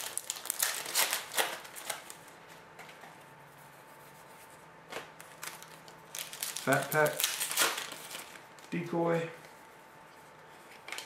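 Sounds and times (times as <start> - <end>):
trading cards rustling: 0.0 - 3.1, 4.9 - 8.8.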